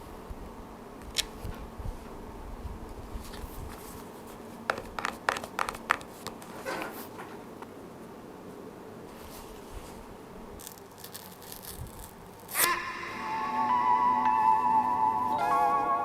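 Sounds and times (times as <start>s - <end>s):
packaging rustle: 3.1s - 7.4s, 10.6s - 12.6s
clicks and taps on a box: 4.7s - 6.4s.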